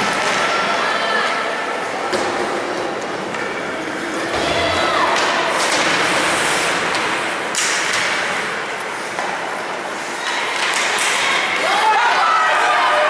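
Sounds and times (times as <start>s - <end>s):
rink crowd hubbub: 0.0s - 13.0s
skates scraping ice: 3.4s - 13.0s
hockey sticks clacking puck: 5.1s - 12.1s.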